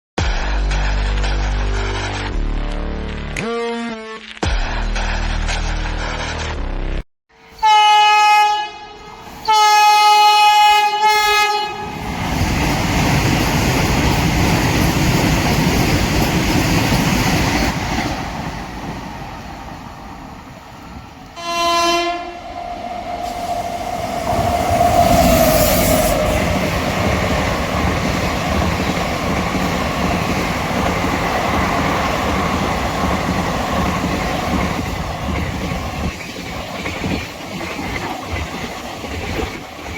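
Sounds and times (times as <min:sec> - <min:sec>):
train horn blasts: 0:07.5 - 0:12.0, 0:21.4 - 0:27.0
train rushing past rumbling: 0:09.1 - 0:39.9
wheels clattering on rails: 0:12.0 - 0:19.2, 0:22.9 - 0:39.9.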